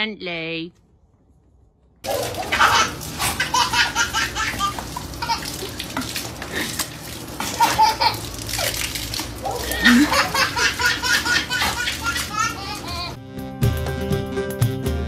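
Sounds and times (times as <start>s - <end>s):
water splashing from garden hose: 2.0s - 13.2s
toddler laughing and squealing: 9.5s - 13.2s.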